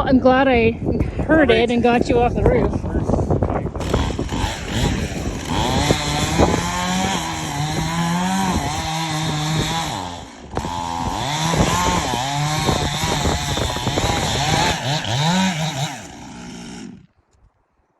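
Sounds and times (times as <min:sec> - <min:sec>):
chainsaw cutting wood: 0:03.8 - 0:17.2.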